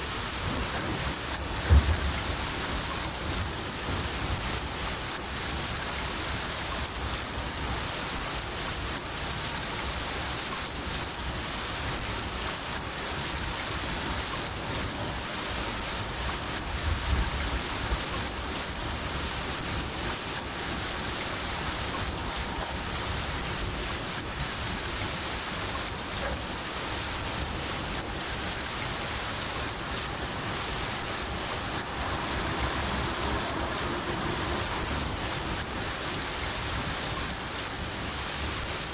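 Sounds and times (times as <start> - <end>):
cricket chirping: 0.0 - 4.4, 5.0 - 9.0, 10.9 - 38.9
rain hiss: 0.0 - 38.9
thunder rumble: 0.2 - 4.6, 30.3 - 37.4.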